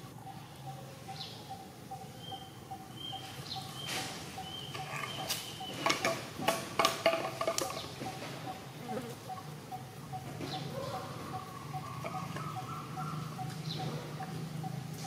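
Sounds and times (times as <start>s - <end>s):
small birds chirping: 0.0s - 6.7s, 7.6s - 15.0s.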